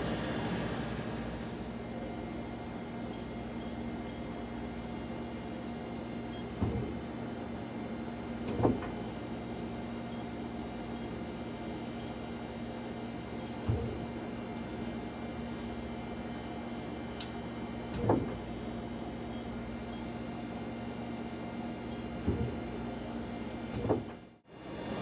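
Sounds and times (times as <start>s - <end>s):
lathe electrical hum: 0.0s - 6.2s, 24.5s - 25.0s.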